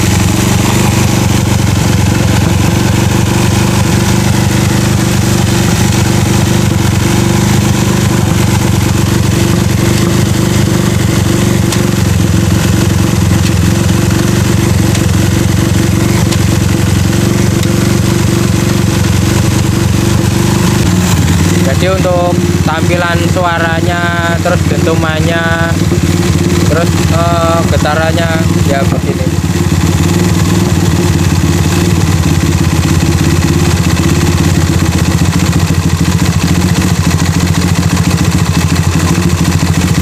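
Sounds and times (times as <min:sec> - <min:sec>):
single-cylinder engine thumping: 0:00.0 - 0:40.0.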